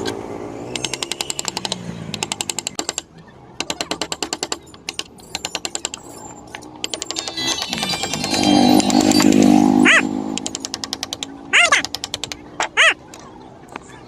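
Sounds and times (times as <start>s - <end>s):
rapid sharp clicks: 10.4s - 12.5s.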